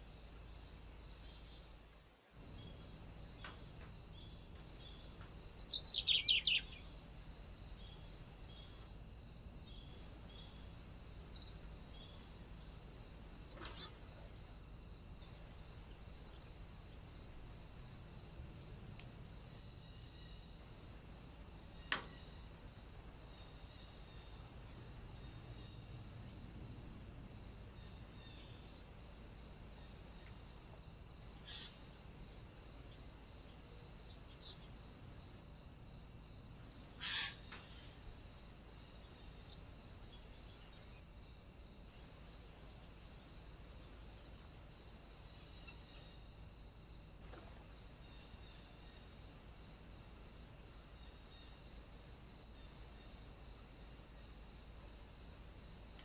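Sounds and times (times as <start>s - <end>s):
high hiss with faint pulsing: 0.0s - 56.0s
small birds chirping: 2.4s - 8.9s, 13.4s - 14.4s.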